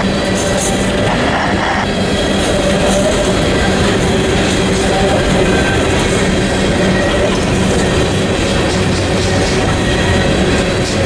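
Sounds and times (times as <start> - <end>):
freight train wheels rumbling on rails: 0.0 - 11.0.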